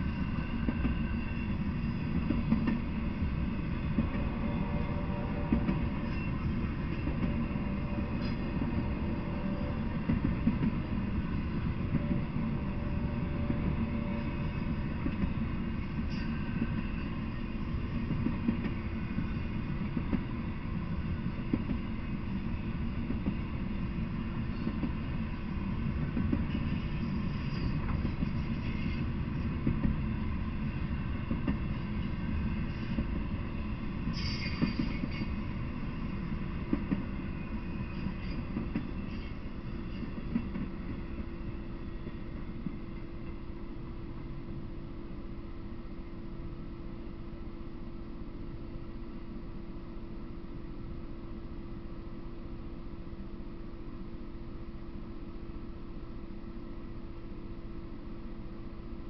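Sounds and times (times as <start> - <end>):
freight train rumble: 0.0 - 59.0
high wheel squeal: 34.1 - 35.4.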